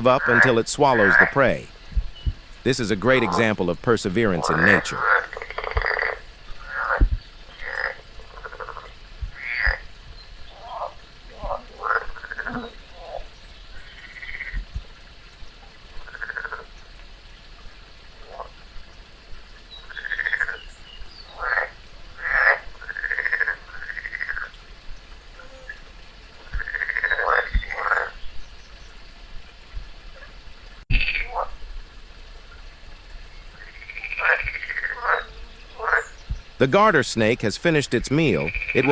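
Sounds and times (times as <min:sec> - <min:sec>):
frog croaking: 0:00.0 - 0:09.9, 0:10.5 - 0:14.6, 0:16.0 - 0:16.7, 0:19.8 - 0:24.5, 0:25.4 - 0:28.2, 0:30.9 - 0:31.6, 0:33.6 - 0:38.9.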